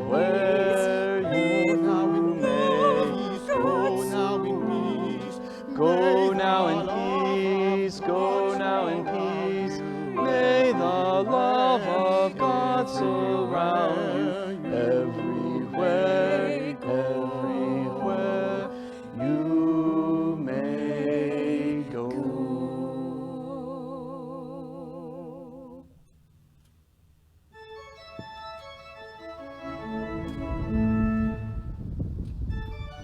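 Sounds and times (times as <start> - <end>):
organ chords: 0.0 - 24.5, 27.5 - 33.0
person singing with vibrato: 0.0 - 26.0.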